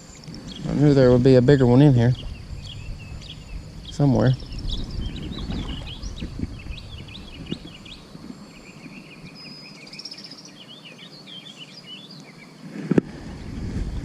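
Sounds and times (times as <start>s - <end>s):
outdoor background hiss: 0.0s - 14.0s
songbirds chirping: 0.0s - 14.0s.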